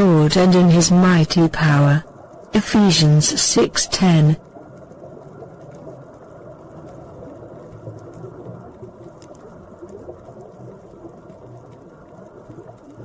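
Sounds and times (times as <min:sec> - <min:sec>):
water rushing: 0:00.0 - 0:04.4
faint ticks: 0:04.4 - 0:13.0.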